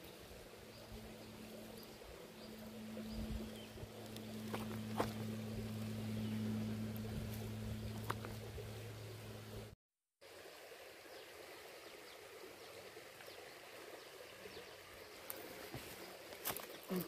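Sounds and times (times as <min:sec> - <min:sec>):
low hum: 0:00.0 - 0:09.8
river flowing: 0:00.0 - 0:17.0.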